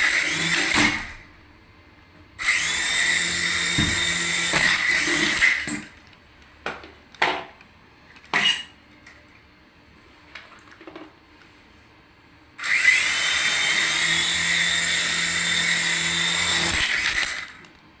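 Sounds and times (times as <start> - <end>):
toy helicopter rotor whirring: 2.4 - 5.7, 12.6 - 17.7.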